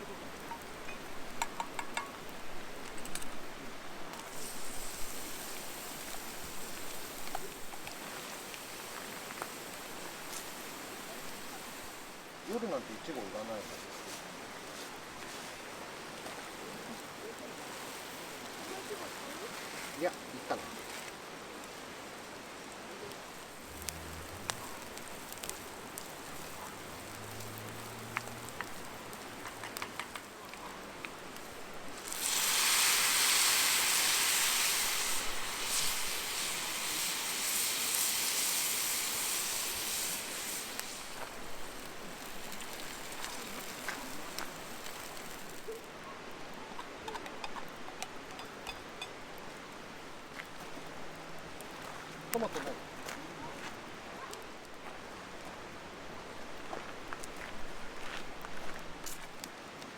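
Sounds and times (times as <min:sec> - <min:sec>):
campfire crackling and popping: 0:00.0 - 0:13.3, 0:16.2 - 0:59.9
food sizzling in pan: 0:00.0 - 0:13.4, 0:23.1 - 0:46.0.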